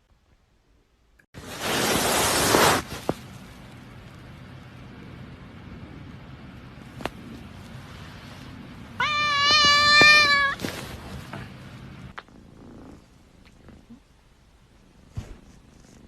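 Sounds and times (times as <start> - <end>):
cat meowing loudly: 9.0 - 10.6.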